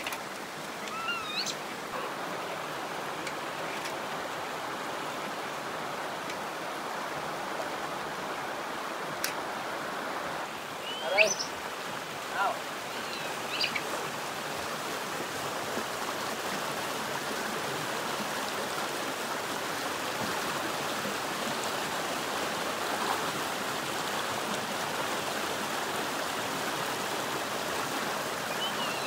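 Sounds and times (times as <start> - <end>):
stream rushing over rocks: 0.0 - 29.0.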